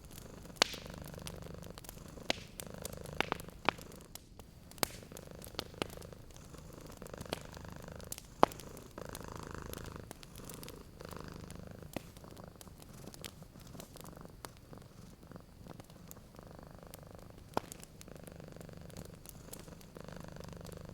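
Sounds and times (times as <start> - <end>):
cat purring: 0.0 - 20.9
wood fire crackling and popping: 0.0 - 20.9.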